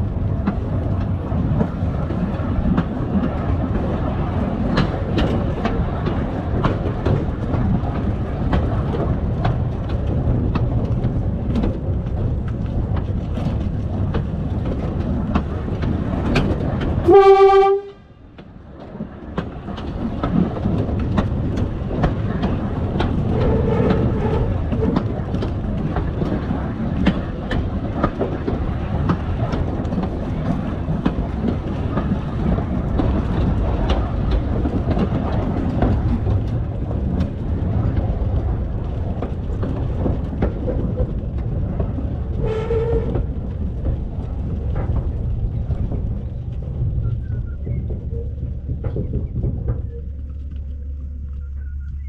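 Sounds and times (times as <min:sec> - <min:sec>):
railcar rumbling along track: 0:00.0 - 0:52.0
wheel clicks on rail joints: 0:00.0 - 0:52.0
train horn blast: 0:17.0 - 0:18.1.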